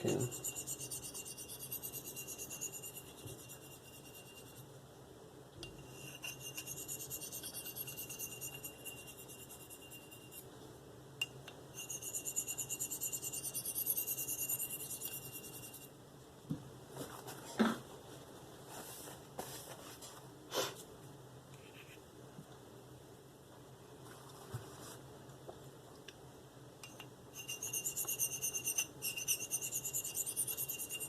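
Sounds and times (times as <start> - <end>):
knife scraping on sharpening stone: 0.0 - 4.6, 5.6 - 10.4, 11.8 - 15.9, 26.8 - 31.0.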